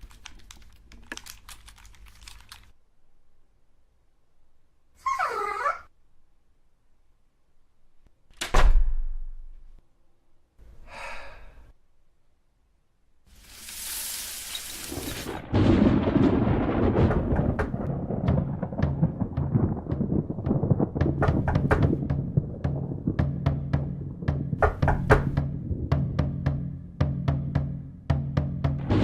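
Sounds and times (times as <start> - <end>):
dense crackling rumble: 0.0 - 2.8, 14.4 - 28.1
creature-like cry: 5.0 - 5.9
hissing rush: 13.3 - 15.5
heavy thud with deep boom: 15.6 - 29.0.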